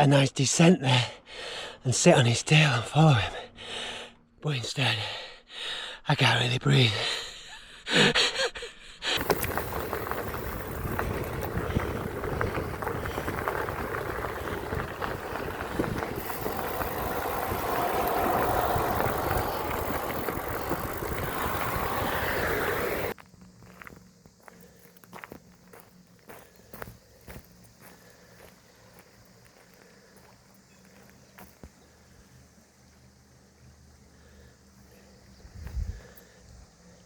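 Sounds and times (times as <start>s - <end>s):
heavy gasping breaths: 1.0s - 1.8s, 3.2s - 4.2s, 5.0s - 6.1s
bicycle wind and tyre noise: 9.2s - 32.7s.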